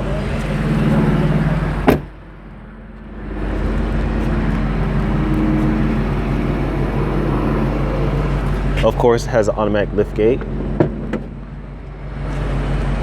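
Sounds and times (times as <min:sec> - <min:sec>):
car engine idling: 0:00.0 - 0:13.0
car door slamming: 0:01.8 - 0:02.2.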